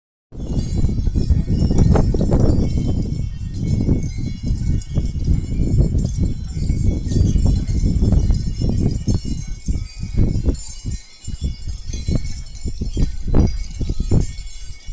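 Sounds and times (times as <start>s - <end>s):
faint high tinkling: 0.4s - 14.9s.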